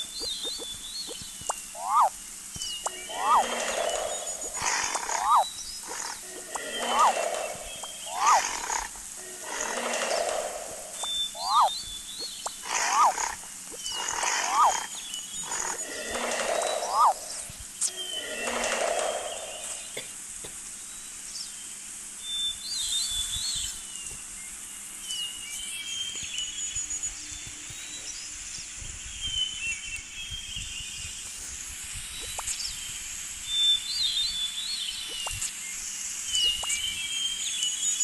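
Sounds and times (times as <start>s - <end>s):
birds chirping: 0.0s - 20.2s
steady high hiss: 0.0s - 38.0s.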